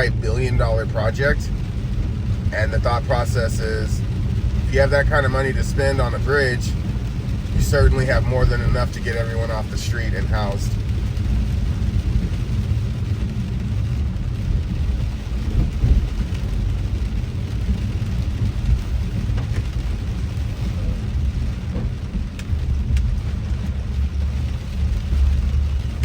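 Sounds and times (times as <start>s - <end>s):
car and tyres rumbling on wet road: 0.0s - 26.0s
rain hissing: 0.0s - 26.0s
raindrops ticking on car: 0.0s - 26.0s.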